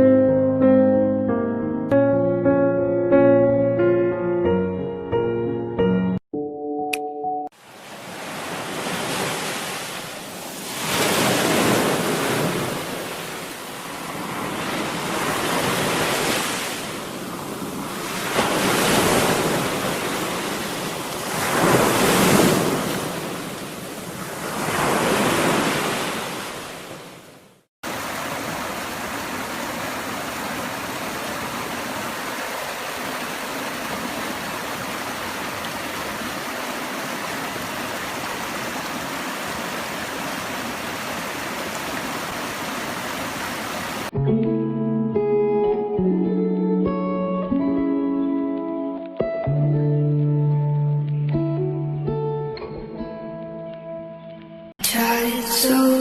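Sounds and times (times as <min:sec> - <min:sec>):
running water rush: 0:07.6 - 0:44.1
ocean waves washing in: 0:07.6 - 0:44.2.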